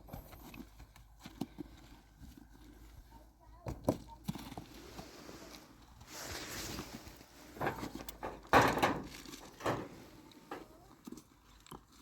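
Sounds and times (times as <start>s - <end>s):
soft scrape: 4.6s - 8.0s.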